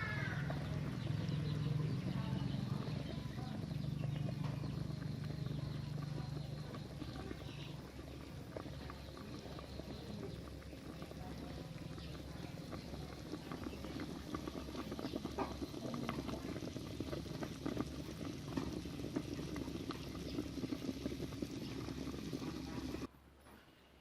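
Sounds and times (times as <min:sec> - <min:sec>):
pot of curry bubbling: 0:00.0 - 0:23.1.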